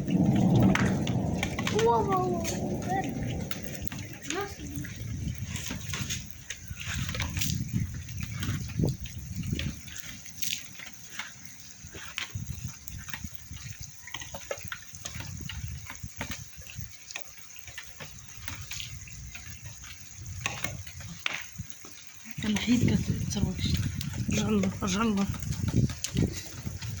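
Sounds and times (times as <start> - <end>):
rain falling: 0.0 - 27.0
water drips and splashes: 0.0 - 27.0.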